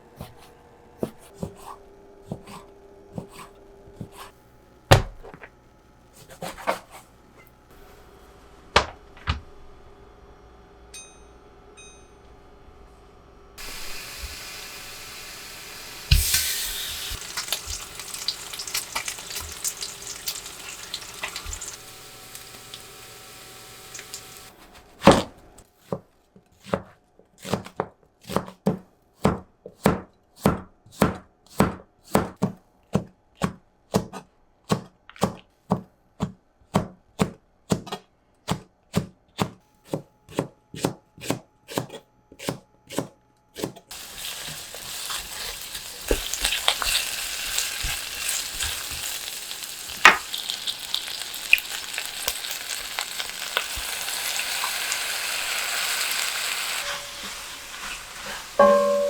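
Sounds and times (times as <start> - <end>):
knife chopping on cutting board: 0.2 - 5.5, 6.2 - 7.0, 24.6 - 43.9
food sizzling in a pan: 13.6 - 24.6, 43.9 - 59.0.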